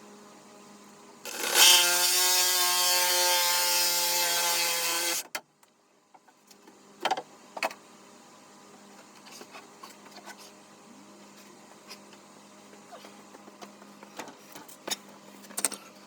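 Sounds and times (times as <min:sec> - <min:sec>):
power tool motor running: 0:01.3 - 0:05.2.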